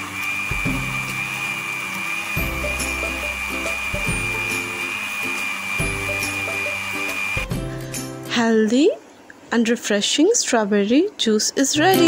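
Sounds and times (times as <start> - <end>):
electric blender motor whine: 0.0 - 8.0
background music: 0.0 - 8.7, 11.8 - 12.0.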